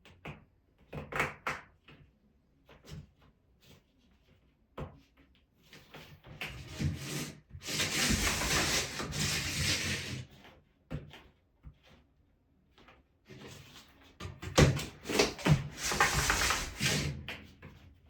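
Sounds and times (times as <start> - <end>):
cable scraping on plastic: 6.3 - 10.5, 13.3 - 17.5.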